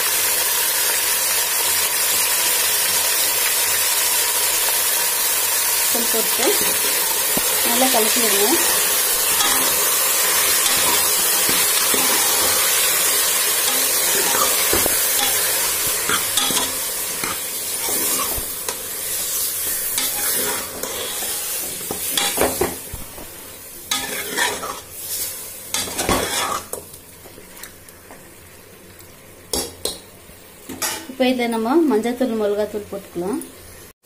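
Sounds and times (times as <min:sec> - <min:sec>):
chicken sizzling in hot oil: 0:00.0 - 0:33.9
spoon scraping and clanking on pot: 0:08.6 - 0:12.8, 0:13.7 - 0:18.8, 0:19.9 - 0:22.8, 0:23.9 - 0:24.9, 0:25.8 - 0:26.8.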